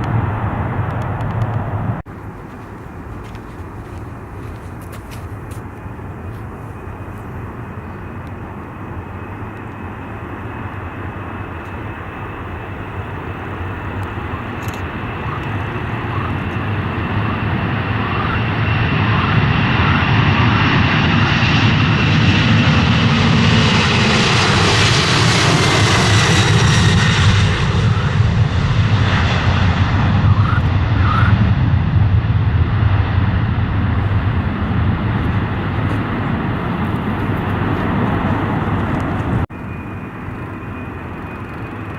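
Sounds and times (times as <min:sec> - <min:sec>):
airliner engine noise: 0:00.0 - 0:41.9
engine whine falling in pitch: 0:05.2 - 0:34.3.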